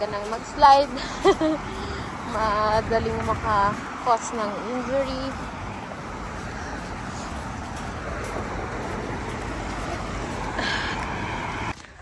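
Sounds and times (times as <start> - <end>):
cars passing on a wet street: 0.0 - 12.0.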